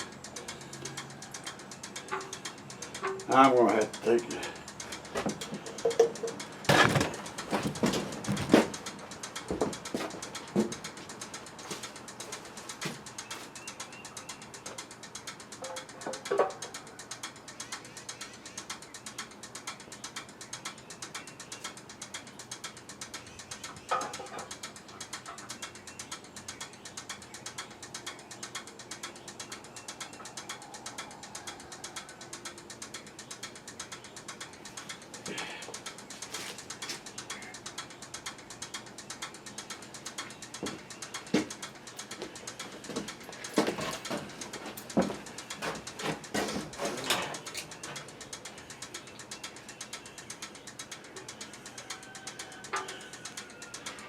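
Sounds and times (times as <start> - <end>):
rapid mechanical clicking: 0.0 - 54.0
sharp knocks: 6.7 - 8.8.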